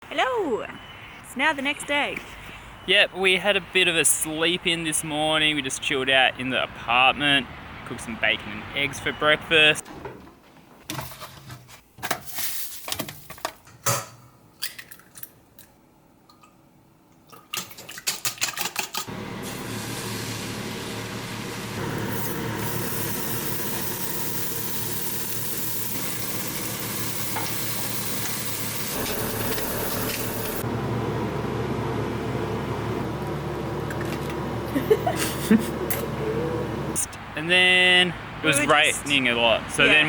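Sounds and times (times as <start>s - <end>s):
bacon and eggs sizzling: 19.1s - 30.6s.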